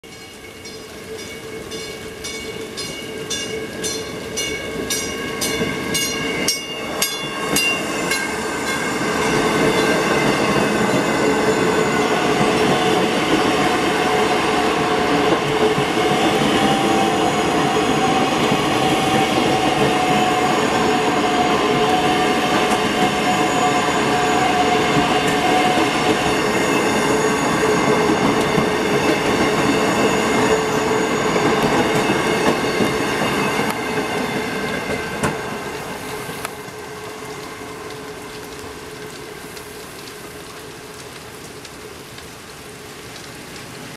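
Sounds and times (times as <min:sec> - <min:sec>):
bell ringing: 0:00.0 - 0:12.4
electric train rumbling and whining: 0:00.1 - 0:43.9.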